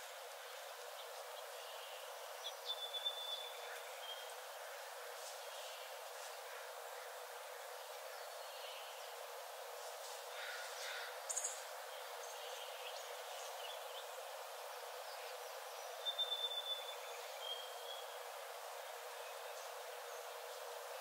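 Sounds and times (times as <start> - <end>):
soft hiss: 0.0 - 21.0
bird chirps: 16.0 - 18.0.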